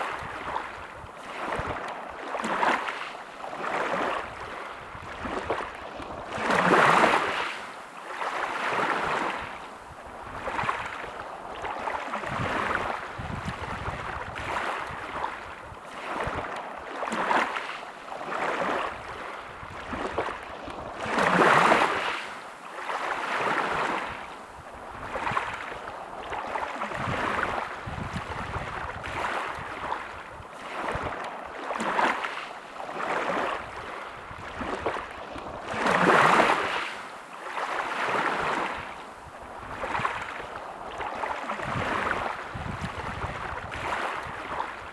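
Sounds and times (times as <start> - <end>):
sea waves washing on beach: 0.0 - 44.9.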